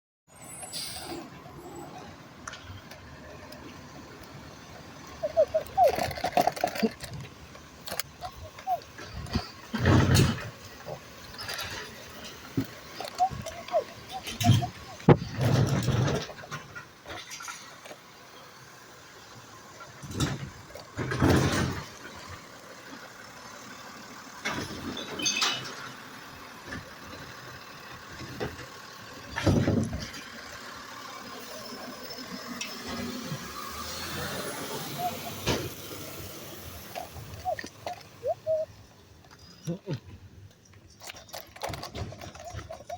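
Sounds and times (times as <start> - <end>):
truck engine running: 1.3 - 42.9
high squeaks of moving parts: 5.0 - 17.7, 24.8 - 25.8, 31.4 - 39.6, 41.0 - 42.9
knocks and clanks: 5.8 - 18.0, 20.0 - 22.5, 29.3 - 30.3.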